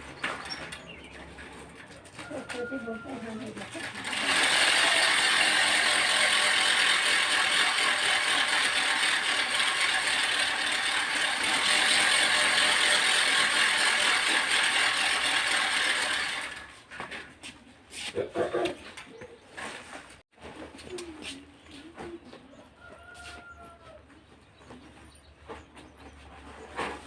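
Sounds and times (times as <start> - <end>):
spinning noisemaker ratcheting whirr: 3.1 - 16.9.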